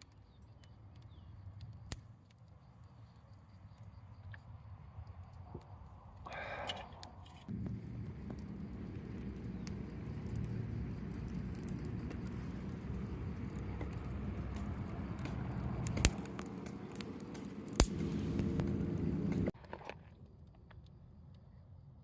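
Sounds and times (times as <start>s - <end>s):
sharp clicks: 6.3s - 19.6s
steady low rumble: 7.4s - 19.6s.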